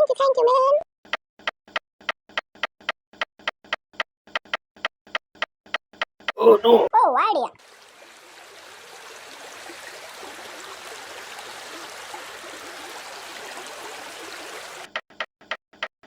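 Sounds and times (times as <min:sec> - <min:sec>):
running water rushing: 0:07.6 - 0:14.9.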